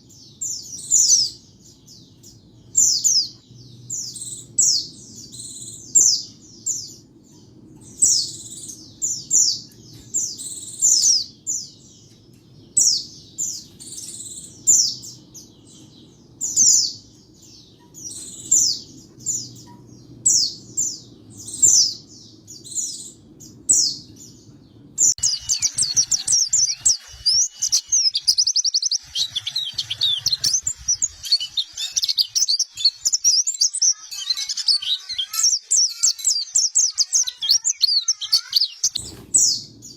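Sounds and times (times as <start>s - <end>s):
bird chirping song: 0.0s - 39.9s
fast bird twittering: 25.1s - 39.7s.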